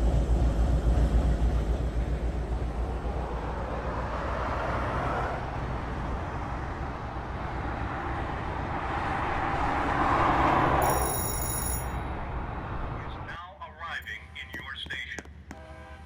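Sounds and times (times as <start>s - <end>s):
train rumbling past: 0.0s - 4.7s.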